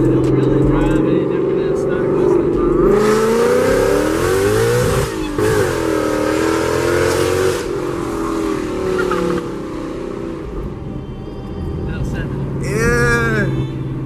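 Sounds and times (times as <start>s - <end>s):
car engine accelerating: 0.0s - 10.6s.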